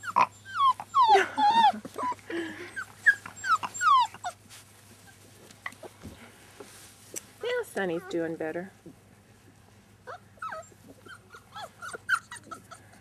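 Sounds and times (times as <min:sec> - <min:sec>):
puppies whimpering: 0:00.0 - 0:04.5, 0:10.1 - 0:13.0.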